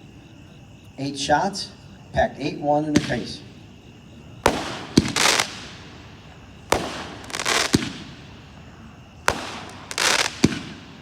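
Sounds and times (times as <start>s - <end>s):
firework launch thump: 4.5s - 5.9s, 6.7s - 8.2s, 9.3s - 11.0s
firework burst in the air: 4.5s - 6.0s, 6.7s - 8.3s, 9.3s - 11.0s.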